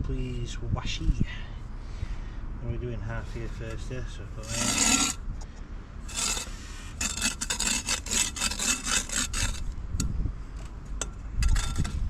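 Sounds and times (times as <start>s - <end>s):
trowel scraping adhesive: 4.4s - 5.2s, 6.1s - 9.7s, 11.4s - 12.0s.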